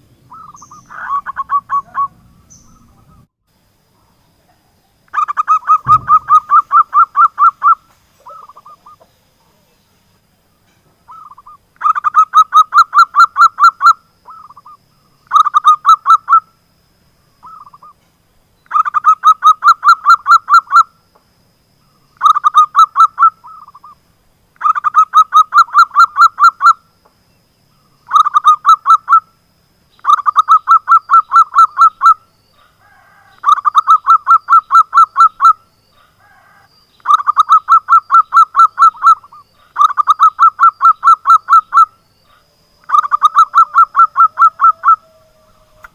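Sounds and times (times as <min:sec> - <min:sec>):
dove cooing: 0:00.0 - 0:03.3, 0:05.1 - 0:09.6, 0:30.0 - 0:45.9.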